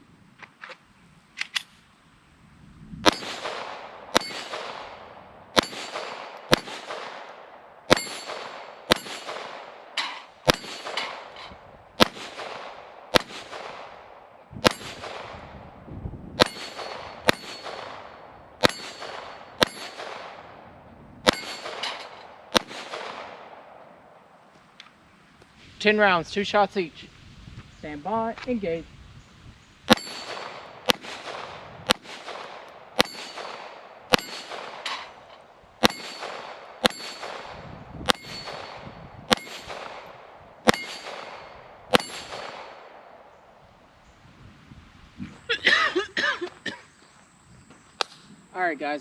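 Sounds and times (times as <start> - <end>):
pistol shots: 3.0 - 11.4, 12.0 - 15.4, 16.4 - 20.6, 21.2 - 23.8, 29.9 - 35.1, 35.8 - 43.3.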